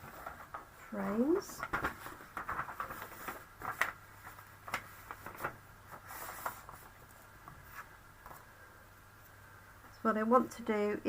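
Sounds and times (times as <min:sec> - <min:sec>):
paper rustle: 0:00.0 - 0:08.5
faint steady hum: 0:00.0 - 0:11.0.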